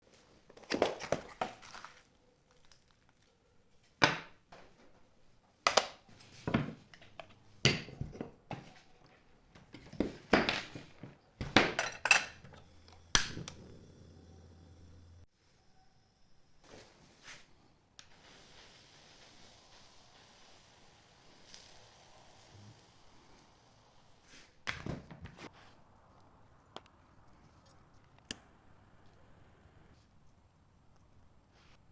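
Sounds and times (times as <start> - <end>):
faint hiss: 12.5 - 24.7.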